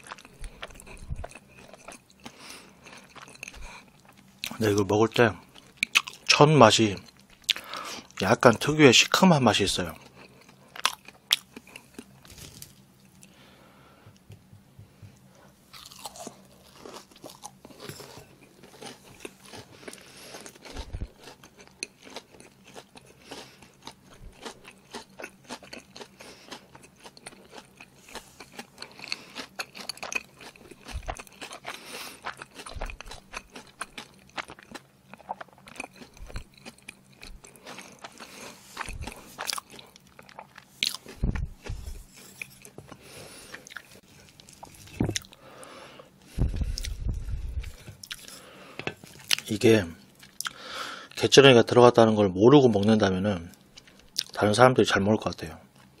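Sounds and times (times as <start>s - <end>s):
person chewing crispy food: 0.0s - 13.6s, 15.7s - 51.2s, 53.5s - 54.4s, 55.7s - 56.0s
soft low thumps: 41.2s - 42.0s, 45.0s - 45.2s, 46.3s - 48.0s.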